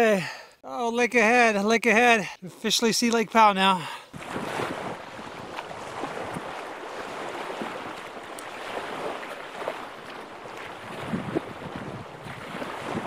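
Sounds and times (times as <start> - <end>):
wind rushing over microphone: 4.2 - 13.0.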